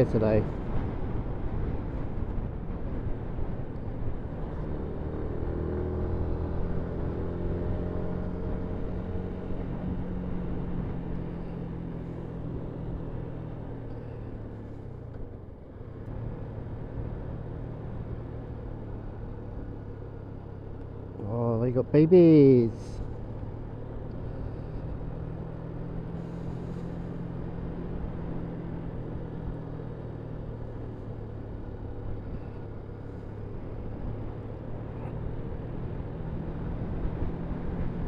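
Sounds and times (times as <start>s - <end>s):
motorcycle engine running: 16.2s - 38.0s.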